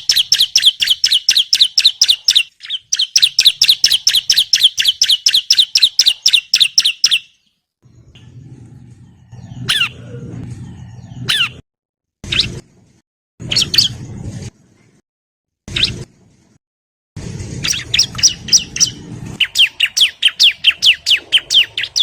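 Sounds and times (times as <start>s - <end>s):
bird calling downslurred chirps: 0.0s - 7.5s, 17.6s - 22.0s.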